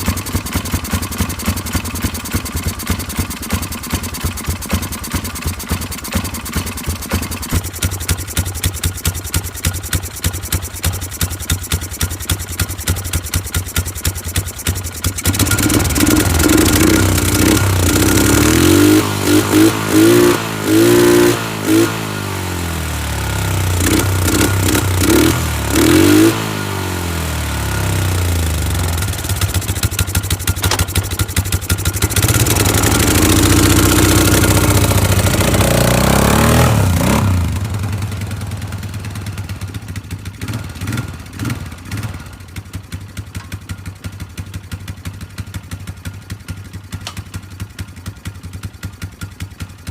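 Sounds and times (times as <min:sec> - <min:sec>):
atv engine revving and idling: 0:00.0 - 0:49.9.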